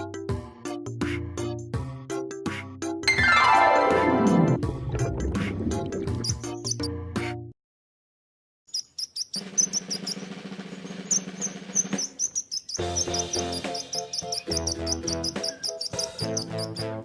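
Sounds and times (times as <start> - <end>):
background music: 0.0 - 7.5, 12.8 - 17.0
small bird chirping: 8.7 - 17.0.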